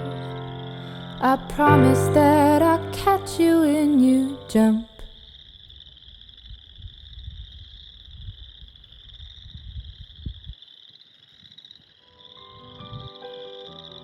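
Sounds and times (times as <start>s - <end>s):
frogs trilling: 5.3s - 14.0s.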